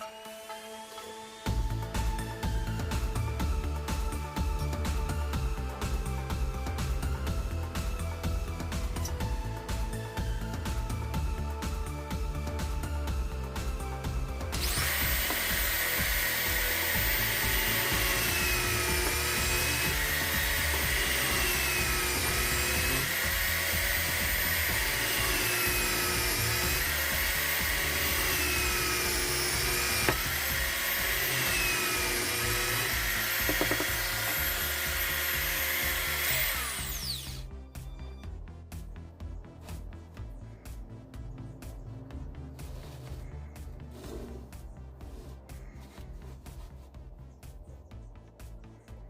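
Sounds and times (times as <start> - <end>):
electric drill running: 0.0 - 11.3, 13.1 - 37.6.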